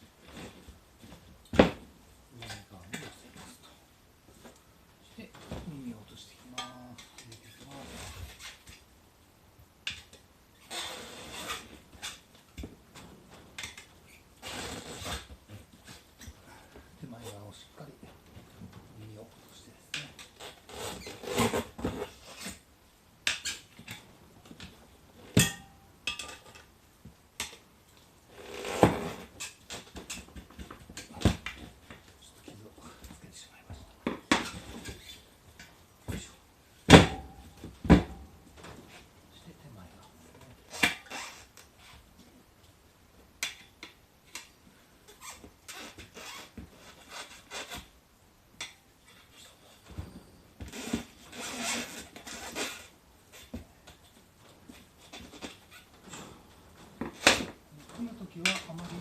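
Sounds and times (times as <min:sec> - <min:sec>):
scrapes and clicks on tyre rim: 0:50.6 - 0:54.0.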